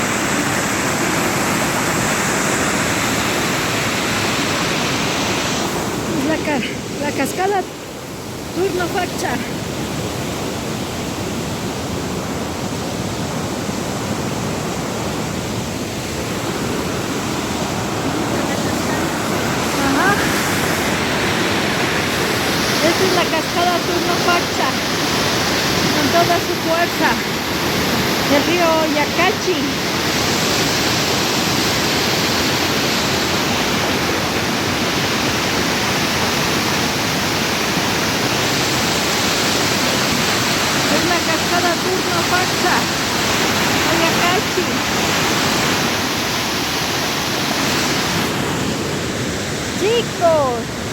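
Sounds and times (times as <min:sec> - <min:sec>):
waterfall crashing: 0:00.0 - 0:50.9.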